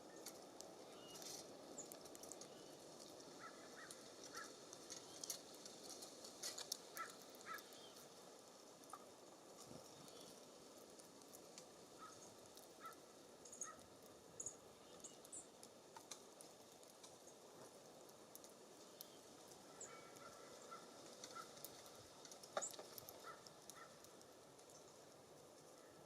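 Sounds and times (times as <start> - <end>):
steady low hiss: 0.0 - 26.0
songbird call notes: 0.9 - 2.8.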